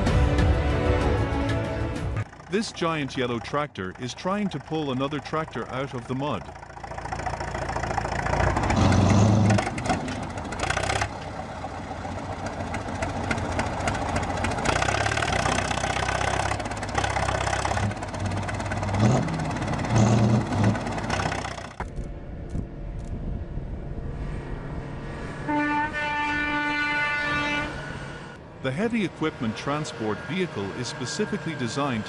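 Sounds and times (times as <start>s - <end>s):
tractor diesel engine under load: 0.0s - 22.9s, 27.5s - 32.0s.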